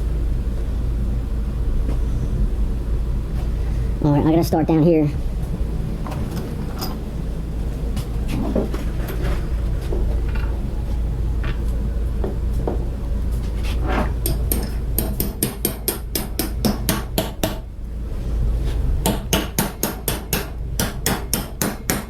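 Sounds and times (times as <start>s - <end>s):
hammer striking bolts: 14.2s - 17.6s, 19.0s - 22.0s.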